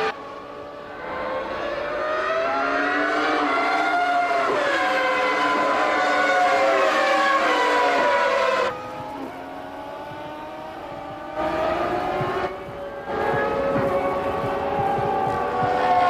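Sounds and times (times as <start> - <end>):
race car engines at high revs: 0.0 - 16.0.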